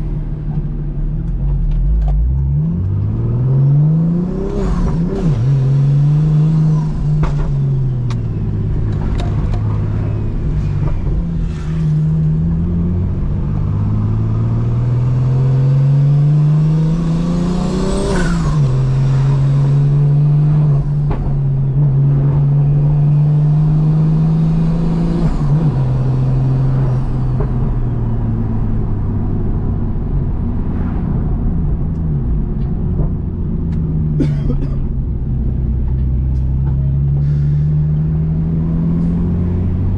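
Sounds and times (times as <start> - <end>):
car engine accelerating through gears: 0.0 - 34.2, 35.0 - 39.9.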